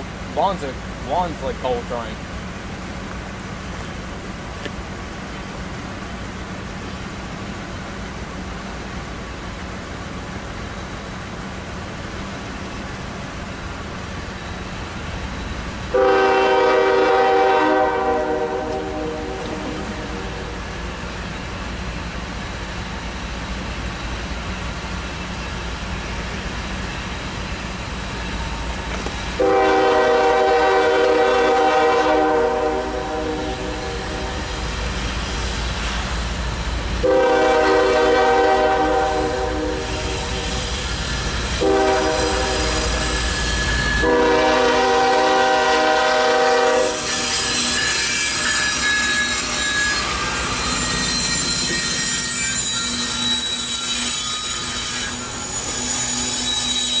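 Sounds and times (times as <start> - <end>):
locomotive rumble: 0.0 - 48.1
wheel squeal and rail noise: 3.2 - 57.0
locomotive horn: 15.9 - 20.8, 29.4 - 34.6, 37.0 - 40.8, 41.5 - 57.0.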